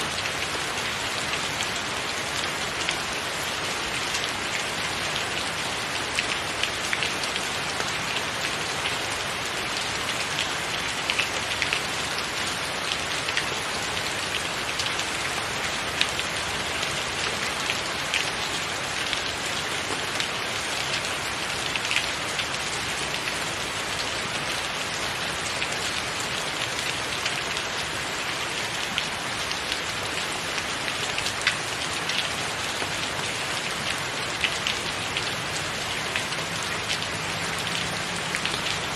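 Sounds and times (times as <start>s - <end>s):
heavy rain on a tiled roof: 0.0s - 38.9s.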